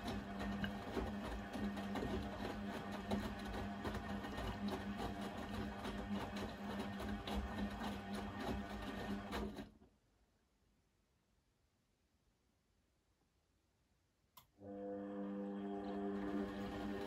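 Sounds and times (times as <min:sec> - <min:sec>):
washing machine hum: 0:00.0 - 0:09.8, 0:14.6 - 0:17.0.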